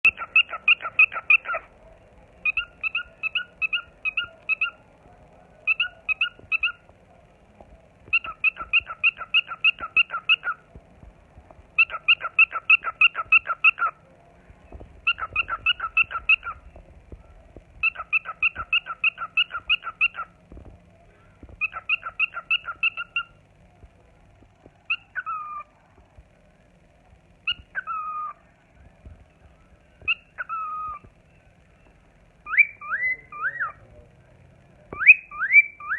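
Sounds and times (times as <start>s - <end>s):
cockatiel whistling: 2.4s - 4.8s, 8.1s - 10.6s, 15.1s - 16.6s, 17.8s - 20.3s, 27.5s - 28.4s, 30.1s - 31.1s, 32.5s - 33.8s, 35.0s - 35.9s.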